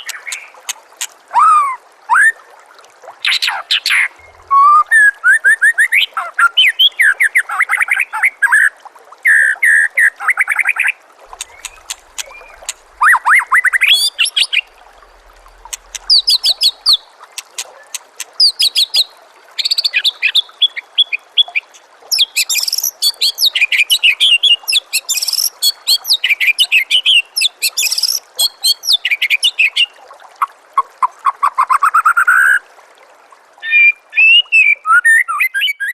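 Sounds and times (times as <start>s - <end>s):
songbird singing trills: 10.1s - 19.1s, 19.8s - 29.8s.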